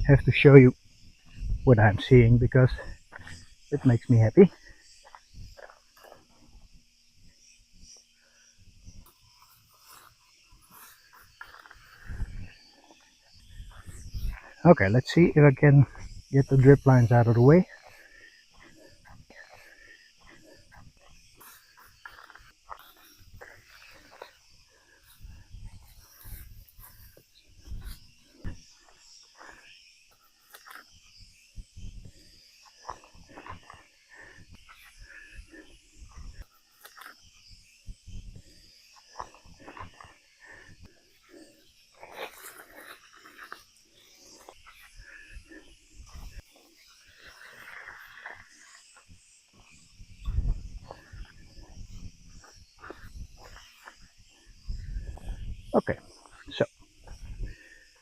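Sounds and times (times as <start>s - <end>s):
wind rumble on microphone: 0.0s - 4.2s, 12.0s - 12.6s, 13.4s - 14.5s, 25.1s - 28.6s, 49.6s - 57.6s
high insect chirr: 0.0s - 58.0s.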